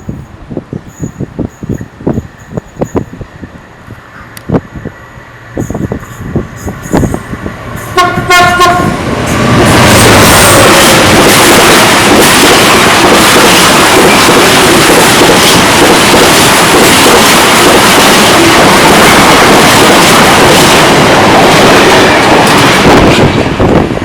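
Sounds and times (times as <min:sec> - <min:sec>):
train passing at speed: 0:00.0 - 0:24.0.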